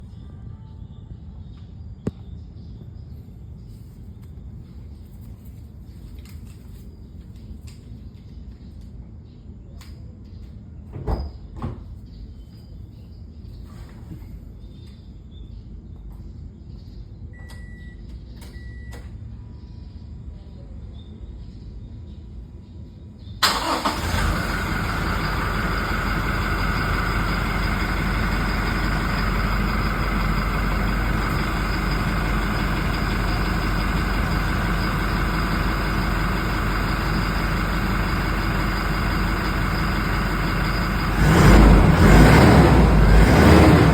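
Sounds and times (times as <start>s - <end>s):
diesel engine starting and idling: 23.4s - 43.9s.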